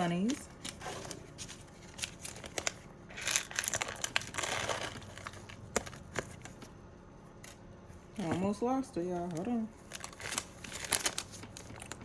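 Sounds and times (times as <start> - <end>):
plastic packaging crinkling: 0.0 - 6.6, 9.1 - 12.0.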